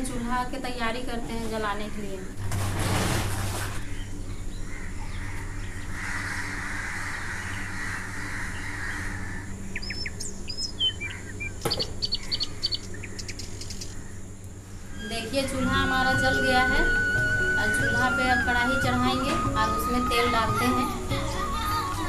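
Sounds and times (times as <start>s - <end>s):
low steady hum: 0.0s - 22.0s
small birds chirping: 3.8s - 15.6s.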